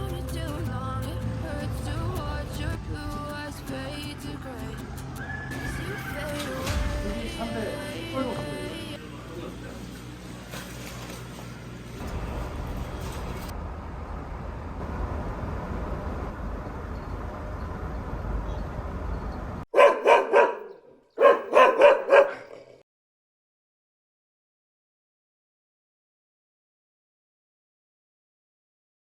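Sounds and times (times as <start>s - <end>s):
rushing background noise: 0.0s - 8.9s
dog barking: 19.7s - 22.8s.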